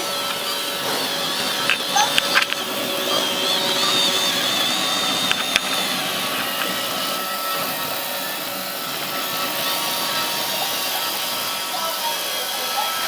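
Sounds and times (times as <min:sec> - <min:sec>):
high wavering whine: 0:00.0 - 0:13.0
robot vacuum whirring: 0:00.0 - 0:13.0
sharp clicks: 0:00.2 - 0:07.1.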